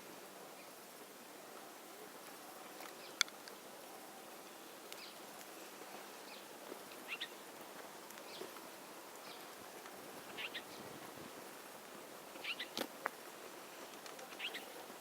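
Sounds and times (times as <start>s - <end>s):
faint hiss: 0.0s - 15.0s
birds chirping: 2.9s - 7.6s, 10.2s - 11.0s, 12.3s - 12.8s, 13.8s - 15.0s.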